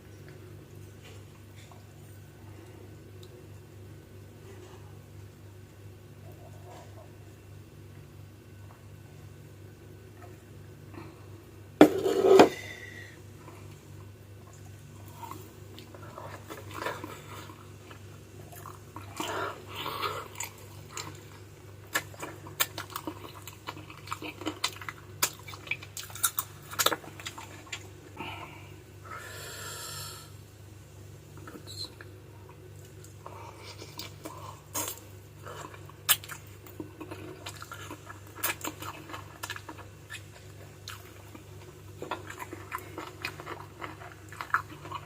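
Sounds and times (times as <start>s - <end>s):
steady low hum: 0.0s - 45.0s
chewing and sucking: 31.5s - 45.0s.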